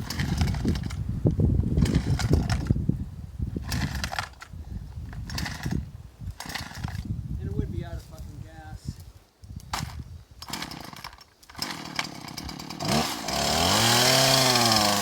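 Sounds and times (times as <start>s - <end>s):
chainsaw engine running rough: 0.0s - 1.0s, 1.8s - 2.7s, 3.6s - 4.3s, 10.4s - 15.0s.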